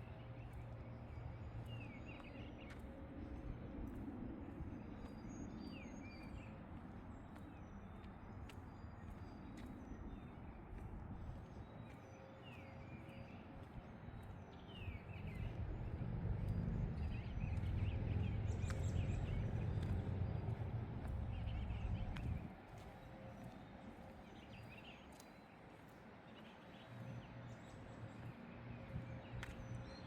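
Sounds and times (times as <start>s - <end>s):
small birds chirping: 7.2s - 22.5s
low rumble: 15.1s - 22.5s.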